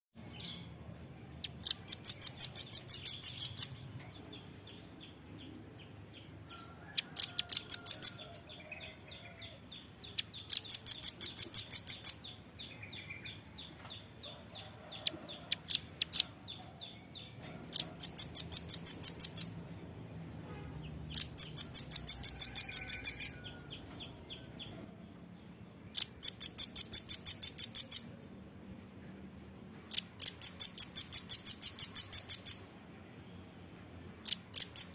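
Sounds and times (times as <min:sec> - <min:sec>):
bird calling in rapid trills: 0:21.2 - 0:23.4, 0:29.9 - 0:32.6, 0:34.2 - 0:34.9.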